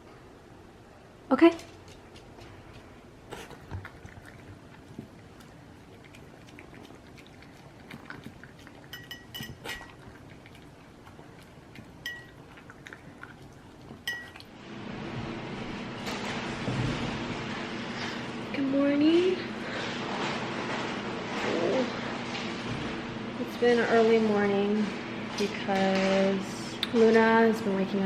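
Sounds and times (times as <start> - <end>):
dog eating from bowl: 1.5 - 15.2.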